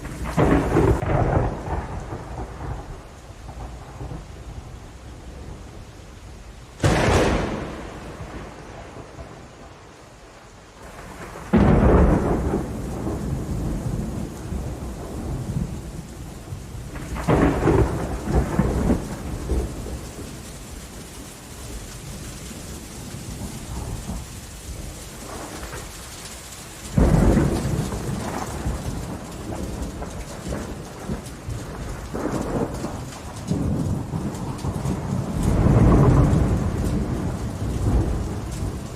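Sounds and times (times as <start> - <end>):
thunder claps: 0.0 - 4.2, 6.8 - 9.9, 10.8 - 16.1, 16.8 - 20.4, 26.8 - 38.9
steady rain falling: 0.0 - 38.9.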